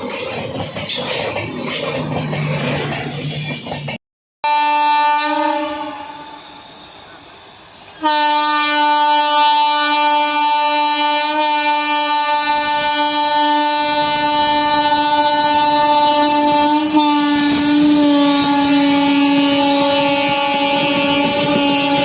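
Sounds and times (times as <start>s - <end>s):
train rumbling past: 0.0s - 22.0s
locomotive horn blast: 4.4s - 6.6s, 8.0s - 22.0s.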